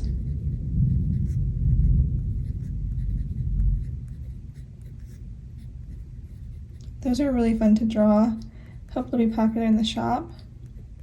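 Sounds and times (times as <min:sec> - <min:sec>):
pen scratching on paper: 0:00.0 - 0:07.8
rolling thunder rumble: 0:00.0 - 0:08.1.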